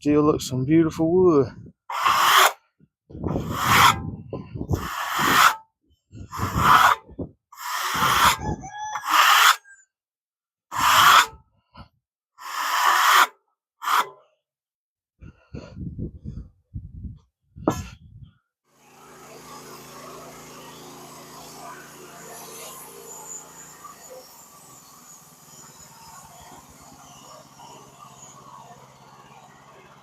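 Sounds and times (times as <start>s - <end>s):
bark scraped off log: 1.9s - 2.6s, 3.4s - 4.0s, 4.8s - 5.6s, 6.4s - 7.0s, 7.6s - 9.6s, 10.7s - 11.4s, 12.4s - 14.1s.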